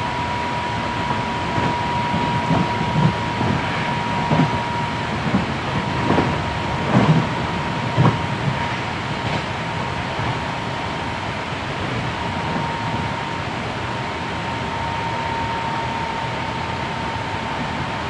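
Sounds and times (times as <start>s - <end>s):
train rumble and hiss: 0.0s - 18.0s
train wheels thumping on track: 1.0s - 10.5s.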